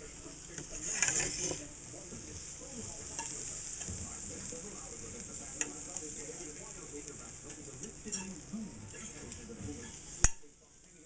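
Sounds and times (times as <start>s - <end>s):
meat and vegetables sizzling in skillet: 0.0s - 11.0s
utensil clicking against pan: 5.3s - 8.5s, 9.8s - 10.5s.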